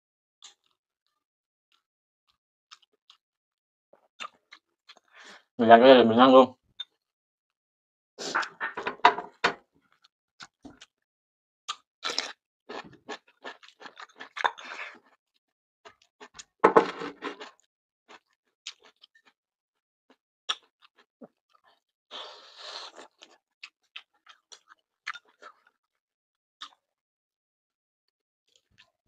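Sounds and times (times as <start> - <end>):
chewing crisp food: 0.4 - 1.8, 2.7 - 3.2, 4.0 - 5.1, 9.9 - 11.0, 11.7 - 19.4, 20.5 - 25.8, 26.6 - 26.9, 28.5 - 29.0.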